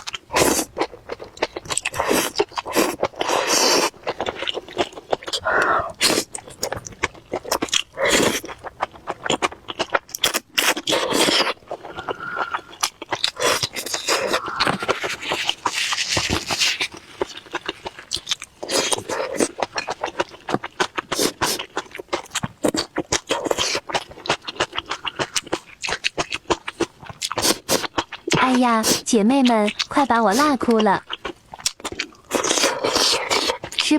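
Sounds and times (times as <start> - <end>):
wet chewing: 0.0 - 33.9
mouth clicks: 10.8 - 15.3.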